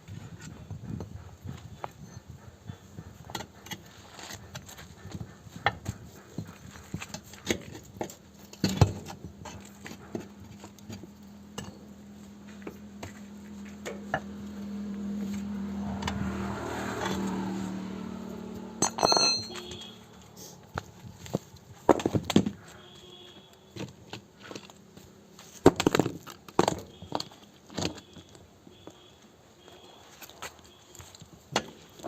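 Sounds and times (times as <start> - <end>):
hand tools knocking and tapping: 18.8 - 20.0
ringing metal clank: 18.8 - 20.0.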